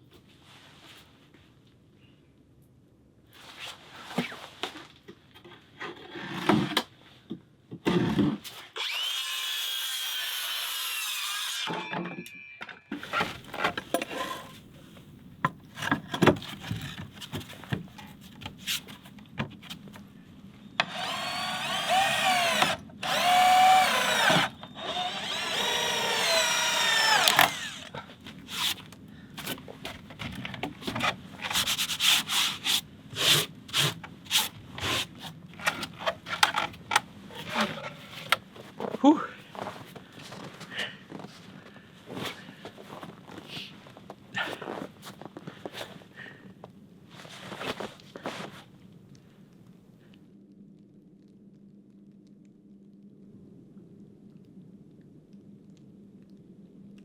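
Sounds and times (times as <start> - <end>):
power drill running into wood: 8.8 - 11.8, 20.8 - 28.0
knocks and handling clatter: 12.6 - 19.8.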